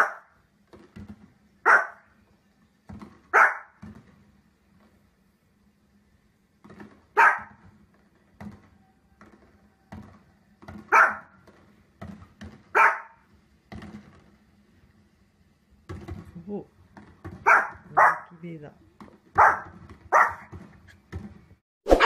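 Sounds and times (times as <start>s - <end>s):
small dog barking: 0.0s - 0.4s, 1.6s - 2.0s, 3.3s - 3.8s, 7.2s - 7.6s, 10.9s - 11.4s, 12.7s - 13.2s, 17.4s - 18.4s, 19.4s - 20.5s
faint pops and knocks: 0.6s - 1.4s, 2.8s - 5.0s, 6.6s - 12.7s, 13.6s - 14.5s, 15.8s - 17.9s.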